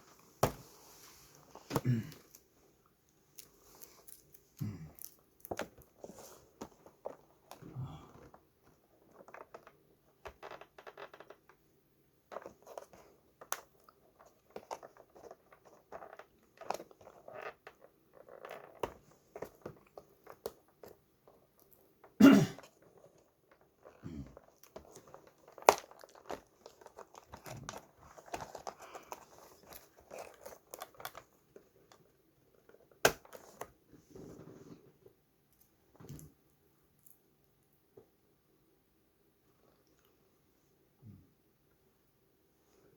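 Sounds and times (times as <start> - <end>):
packaging crinkling and tearing: 24.4 - 31.3.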